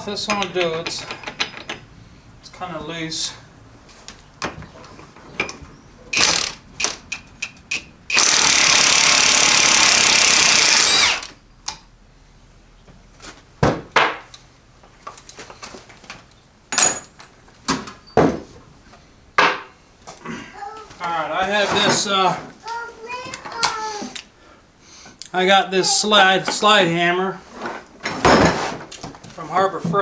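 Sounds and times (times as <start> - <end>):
impact wrench hammering: 6.2 - 11.8.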